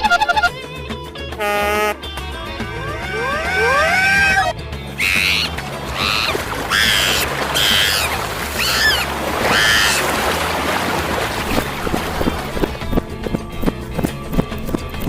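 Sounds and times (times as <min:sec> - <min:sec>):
short high-pitched cries: 0:02.6 - 0:09.9.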